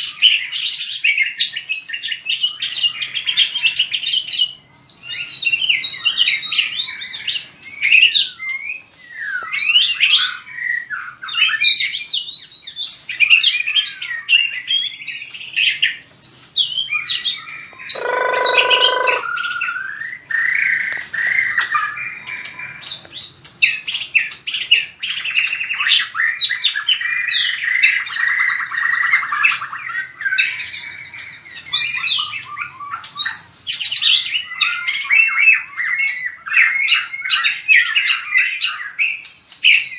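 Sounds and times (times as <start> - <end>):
bird singing whistled phrases: 16.3 - 39.9
harsh low bird note: 18.0 - 19.3.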